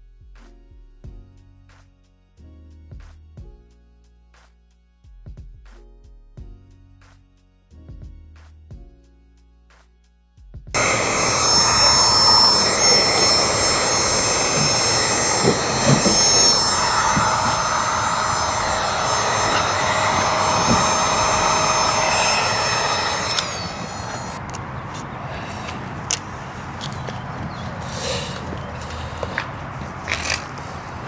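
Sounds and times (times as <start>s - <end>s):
heat gun whining: 10.8s - 31.0s.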